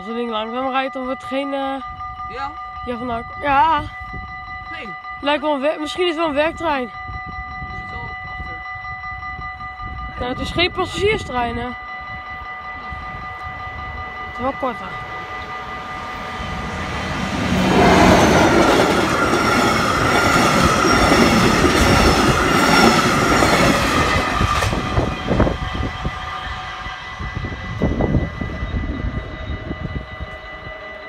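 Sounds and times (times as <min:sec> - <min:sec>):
level crossing bells ringing: 0:00.0 - 0:27.8, 0:28.4 - 0:31.0
diesel locomotive passing: 0:07.4 - 0:31.0.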